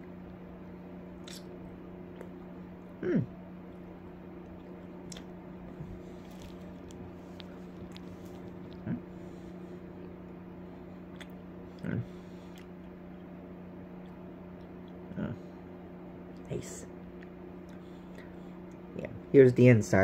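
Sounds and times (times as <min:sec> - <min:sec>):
hummed mm: 0:00.0 - 0:13.3, 0:13.9 - 0:15.8
steady low hum: 0:00.0 - 0:20.0
person chewing cake: 0:00.2 - 0:15.3, 0:16.2 - 0:19.0
wet mouth clicks: 0:01.2 - 0:01.5, 0:11.1 - 0:11.9.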